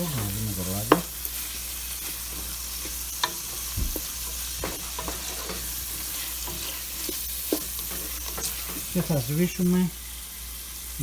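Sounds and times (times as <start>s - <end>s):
food sizzling in a frying pan: 0.0s - 11.0s
utensil scraping a pan: 0.2s - 9.6s.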